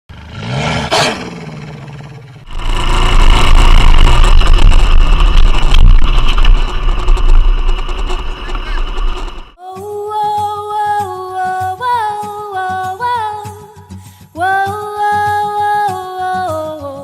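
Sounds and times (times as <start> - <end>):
engine and wind rushing: 0.1 - 9.6
motorcycle engine: 0.1 - 9.6.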